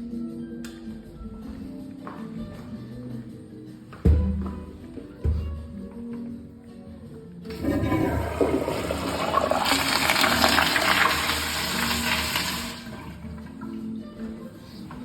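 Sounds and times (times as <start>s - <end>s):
toilet flushing: 7.5s - 13.8s.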